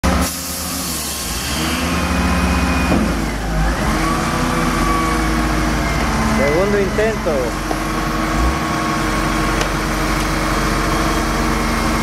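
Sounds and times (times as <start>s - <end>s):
engine revving: 0.1s - 12.0s.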